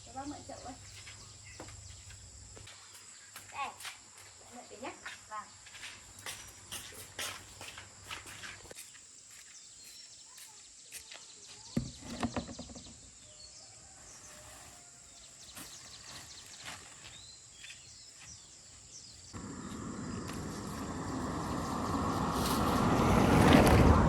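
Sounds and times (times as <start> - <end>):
steady rushing noise: 19.4 - 24.0.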